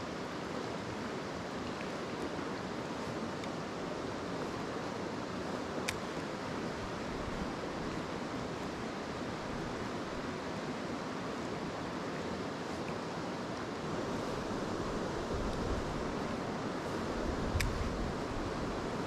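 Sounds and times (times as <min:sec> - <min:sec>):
stream rushing over rocks: 0:00.0 - 0:19.0
sharp click: 0:17.5 - 0:17.8.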